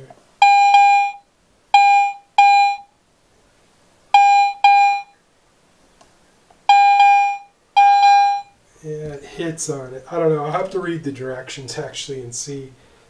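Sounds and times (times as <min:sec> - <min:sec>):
metal detector beeping: 0:00.4 - 0:01.2, 0:01.8 - 0:02.9, 0:04.2 - 0:05.1, 0:06.7 - 0:08.6.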